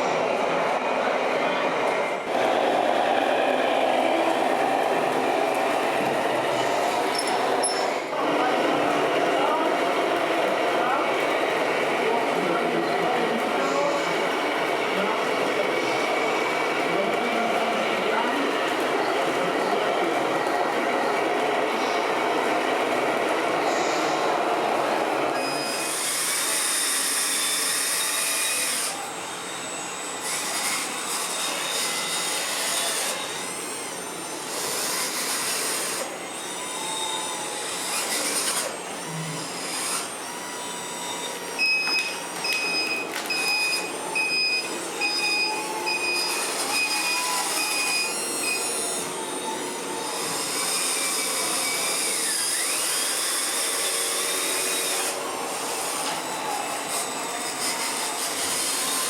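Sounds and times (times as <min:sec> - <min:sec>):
small electric motors whining: 0:02.3 - 0:09.6, 0:23.2 - 0:59.0.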